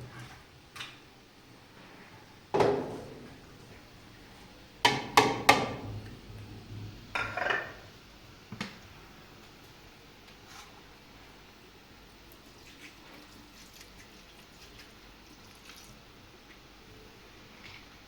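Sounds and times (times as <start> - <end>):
hard objects knocking and clattering: 2.5 - 3.4.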